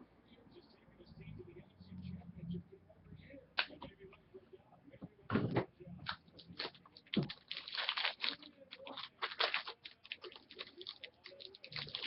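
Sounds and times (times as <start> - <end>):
packaging and cards crinkling: 6.1 - 12.0.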